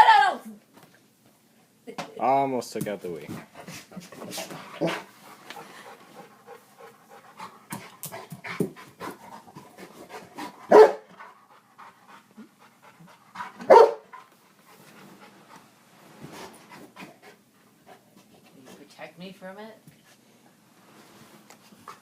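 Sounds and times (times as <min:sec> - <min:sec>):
dog panting: 0:03.3 - 0:19.0
dog barking: 0:10.7 - 0:11.1, 0:13.6 - 0:14.1.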